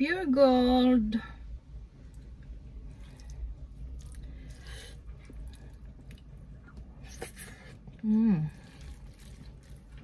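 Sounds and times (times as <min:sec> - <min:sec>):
low steady hum: 0:00.0 - 0:10.0
close chewing and wet mouth sounds: 0:02.0 - 0:10.0.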